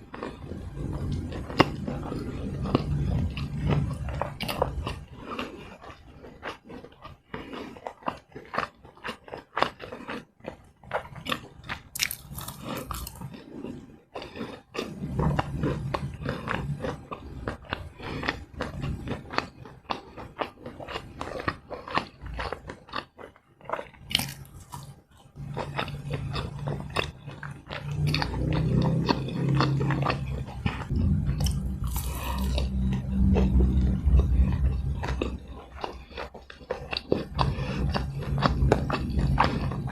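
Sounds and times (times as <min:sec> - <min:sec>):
chewing and biting: 0:00.0 - 0:39.9.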